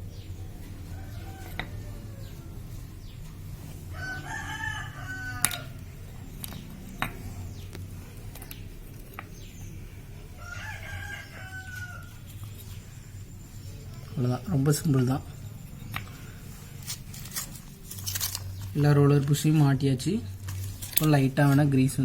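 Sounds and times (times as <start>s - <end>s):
low steady hum: 0.0s - 22.0s
rooster crowing: 0.7s - 2.7s, 3.9s - 5.8s, 10.4s - 12.2s
metal parts clicking: 16.8s - 18.9s, 20.4s - 21.3s.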